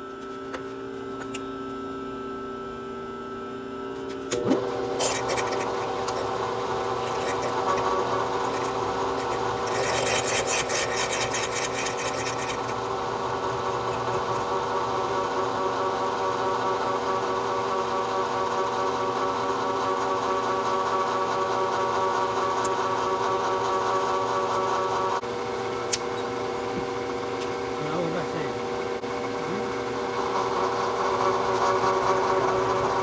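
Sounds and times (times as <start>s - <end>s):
milling machine motor hum: 3.8s - 33.0s
harsh rasping cutting noise: 4.9s - 15.2s.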